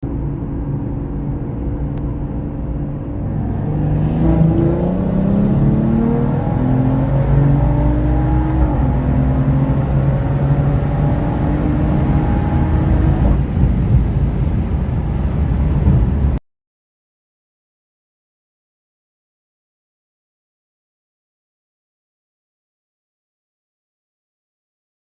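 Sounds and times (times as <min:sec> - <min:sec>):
constant low rumble: 0:00.0 - 0:16.4
car engine accelerating hard: 0:00.1 - 0:16.4.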